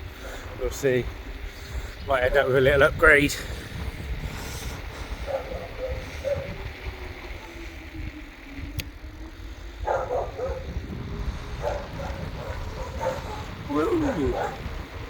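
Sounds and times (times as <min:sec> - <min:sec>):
bicycle road rumble: 0:00.0 - 0:15.0
wind: 0:00.0 - 0:15.0
dog barking: 0:05.3 - 0:06.5, 0:09.8 - 0:10.7, 0:11.6 - 0:13.5, 0:14.2 - 0:14.7.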